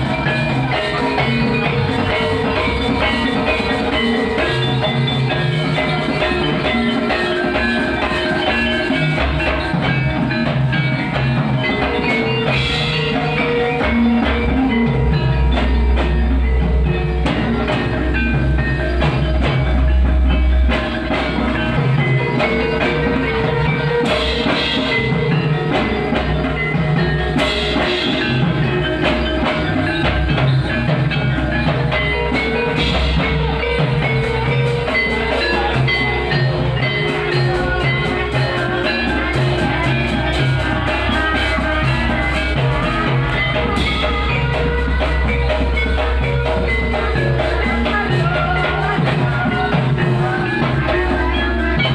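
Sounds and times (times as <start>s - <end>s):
drums: 0.0s - 51.9s
mallet-struck keyed percussion: 0.0s - 51.9s.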